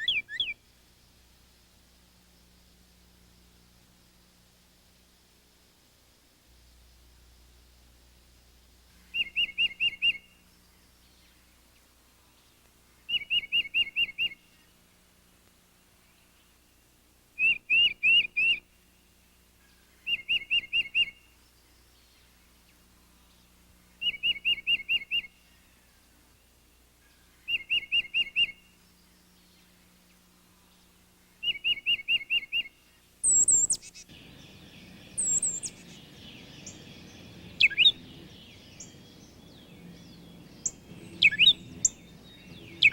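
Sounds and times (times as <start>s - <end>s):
higher-pitched bird calling: 0.0s - 0.6s, 31.4s - 34.0s, 35.1s - 36.0s, 37.4s - 39.0s, 40.6s - 42.9s
songbird whistling phrase: 0.0s - 0.6s, 9.1s - 10.4s, 13.1s - 14.4s, 17.4s - 18.7s, 20.0s - 21.3s, 24.0s - 25.4s, 27.4s - 28.8s, 31.4s - 42.9s.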